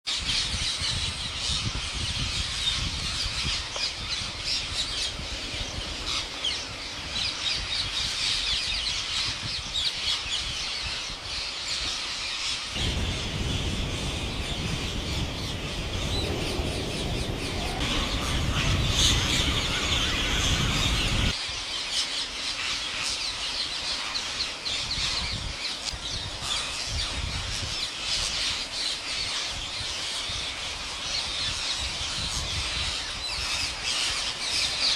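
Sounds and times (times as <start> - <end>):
low rumble: 12.8 - 21.3.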